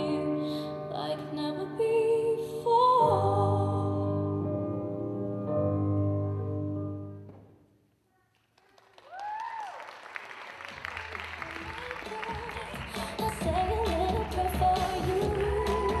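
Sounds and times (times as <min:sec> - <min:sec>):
audience clapping: 0:08.3 - 0:16.0
person cheering: 0:09.0 - 0:09.8.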